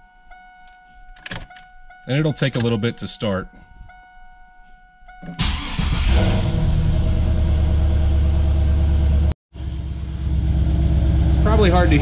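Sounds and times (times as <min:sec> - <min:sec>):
car engine cranking: 0:05.2 - 0:08.0
car engine idling: 0:05.4 - 0:12.0.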